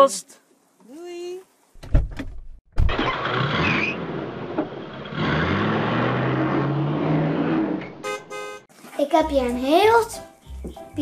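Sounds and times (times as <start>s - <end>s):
car engine starting and revving: 2.8s - 8.0s.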